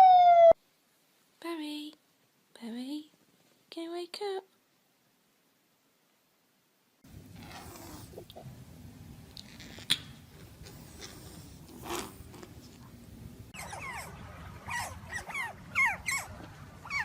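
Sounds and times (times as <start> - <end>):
faint low hum: 0.0 - 17.0
dog whining: 13.6 - 17.0.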